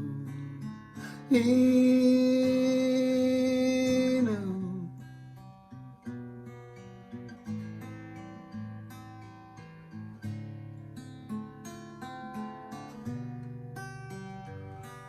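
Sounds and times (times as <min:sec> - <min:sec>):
acoustic guitar picked and strummed: 0:00.0 - 0:15.0
person singing a long note: 0:01.1 - 0:04.9.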